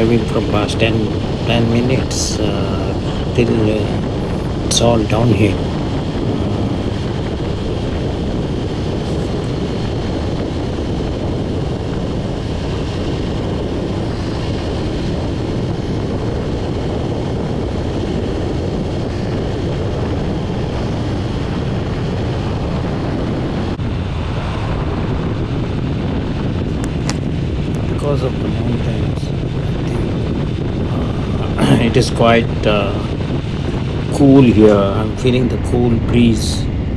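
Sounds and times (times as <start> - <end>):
motorcycle engine hum: 0.0 - 17.0
wind and road noise: 0.0 - 36.9.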